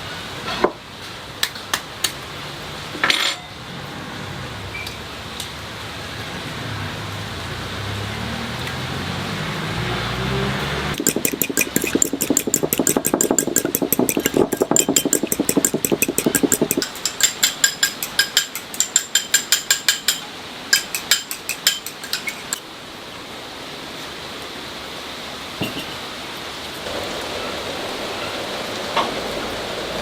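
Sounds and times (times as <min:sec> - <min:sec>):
rapid sharp knocking: 0:11.0 - 0:20.2, 0:20.8 - 0:22.2
steady hiss: 0:26.4 - 0:30.0.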